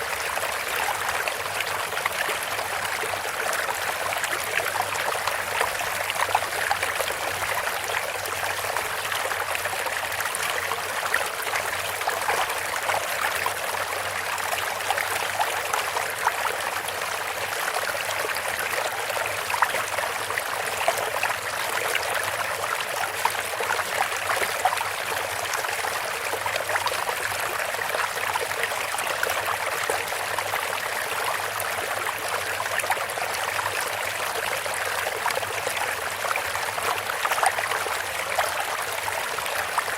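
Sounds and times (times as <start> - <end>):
fountain water trickling and splashing: 0.0 - 39.9.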